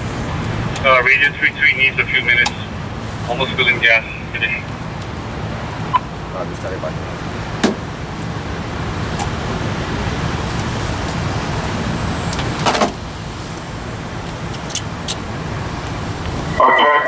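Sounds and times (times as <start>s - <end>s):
low engine rumble: 0.0s - 17.0s
sharp clicks: 13.5s - 16.4s.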